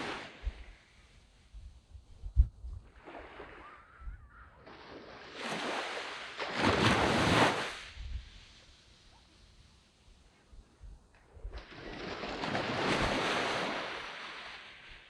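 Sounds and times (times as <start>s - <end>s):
sea waves breaking on beach: 0.0s - 1.1s, 2.9s - 4.0s, 4.6s - 10.0s, 11.5s - 15.0s.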